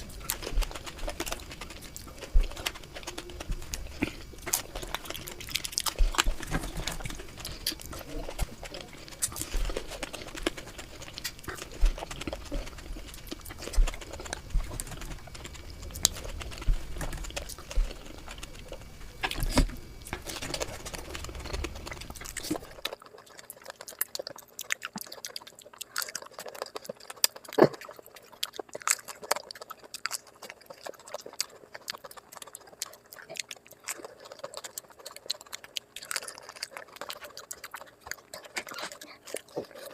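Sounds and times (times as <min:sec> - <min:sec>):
low background rumble: 0:00.0 - 0:22.9
chewing and crunching: 0:00.0 - 0:39.9.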